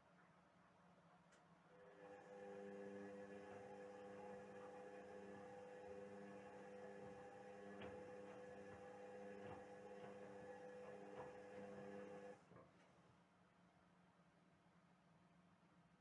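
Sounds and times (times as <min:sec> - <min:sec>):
washing machine hum: 0:01.7 - 0:13.0.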